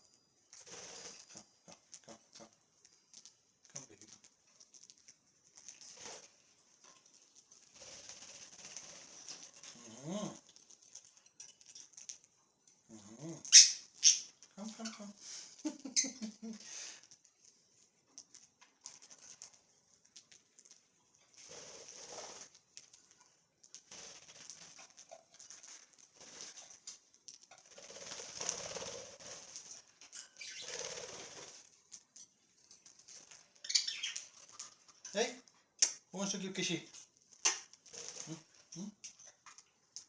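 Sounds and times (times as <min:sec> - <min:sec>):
budgerigars fluttering: 0:27.5 - 0:31.6, 0:33.6 - 0:34.6
soft bird chirps: 0:30.2 - 0:31.0, 0:33.6 - 0:34.4.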